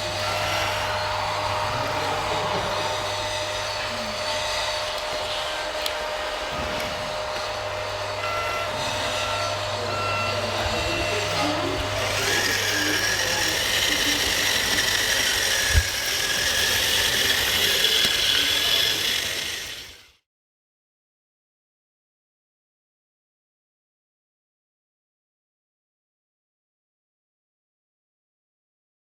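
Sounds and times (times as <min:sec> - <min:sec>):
electric motor whine: 0:00.0 - 0:20.2
reversing beeper beeps: 0:08.1 - 0:14.5.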